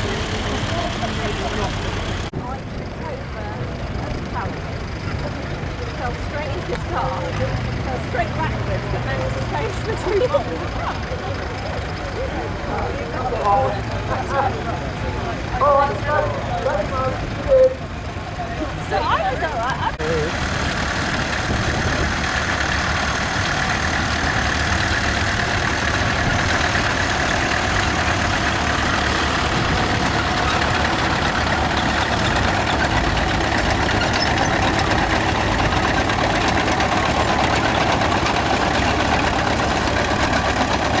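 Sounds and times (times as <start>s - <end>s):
tractor engines running: 0.0s - 41.0s.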